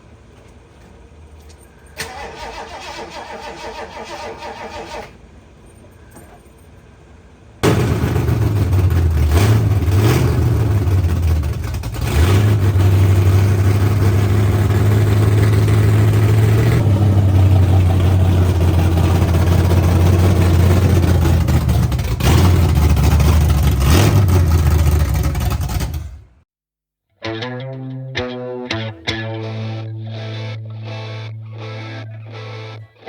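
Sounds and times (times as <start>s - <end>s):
engine throttle blips: 0.0s - 26.4s, 28.7s - 33.0s
loud engine idling: 7.6s - 26.4s.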